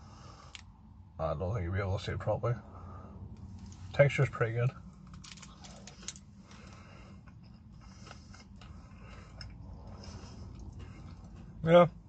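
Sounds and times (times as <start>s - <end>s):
steady low hum: 0.0s - 12.0s
faint chewing: 5.1s - 11.6s.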